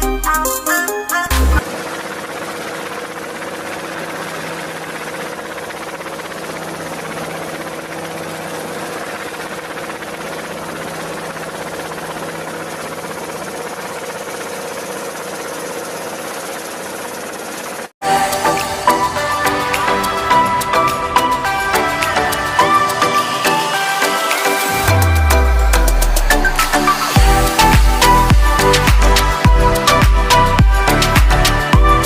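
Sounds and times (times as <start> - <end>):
small motor humming and whirring: 1.6 - 17.9.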